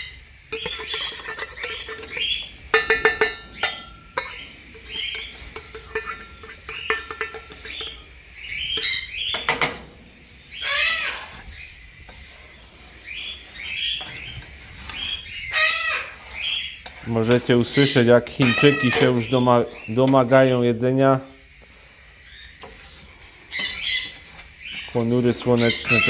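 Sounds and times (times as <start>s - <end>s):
small parrots chirping: 0.0s - 9.5s, 10.4s - 12.0s, 13.0s - 16.8s, 17.7s - 20.0s, 23.4s - 26.0s
metal dishes clinking: 0.5s - 8.0s, 17.3s - 19.3s
parrot squawk: 10.5s - 11.4s, 15.0s - 16.7s, 17.8s - 19.2s.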